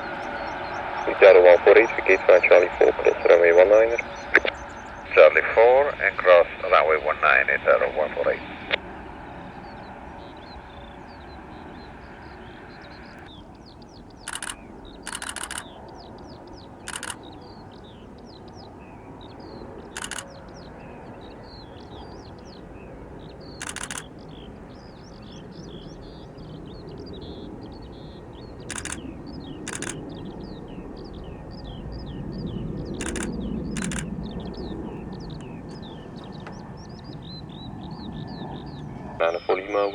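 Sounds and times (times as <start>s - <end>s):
steady low rumble: 0.0s - 15.6s
harsh bird calls: 0.0s - 39.9s
small birds twittering: 0.0s - 39.9s.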